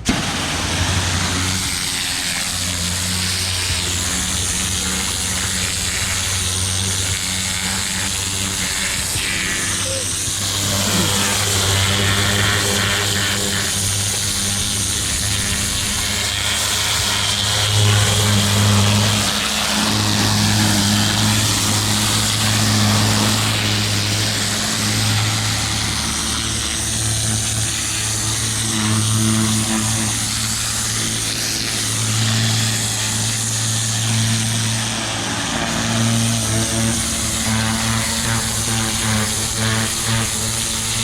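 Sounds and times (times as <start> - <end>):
water jet hissing: 0.0 - 34.7
pressure washer engine hum: 0.0 - 41.0.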